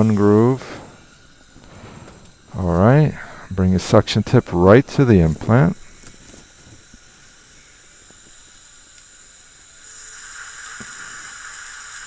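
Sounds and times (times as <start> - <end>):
suction tip hissing: 0.0 - 12.0.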